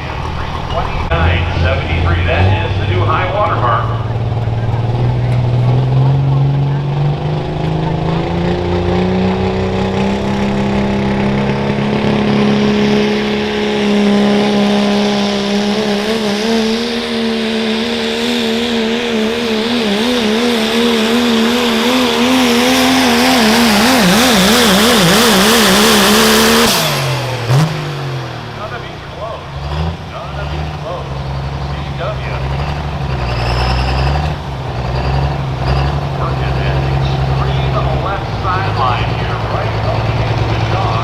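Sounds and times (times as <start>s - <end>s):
diesel truck engine at full throttle: 0.0s - 41.0s.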